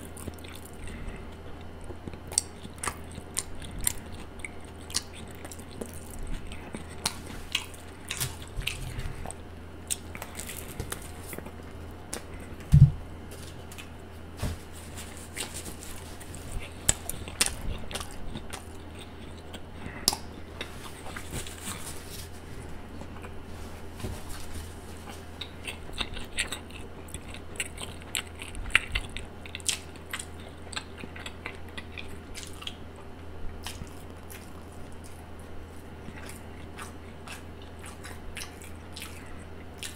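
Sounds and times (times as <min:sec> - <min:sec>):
chewing with wet mouth clicks: 0:00.0 - 0:12.6, 0:16.5 - 0:21.8, 0:25.4 - 0:35.2, 0:36.0 - 0:39.9.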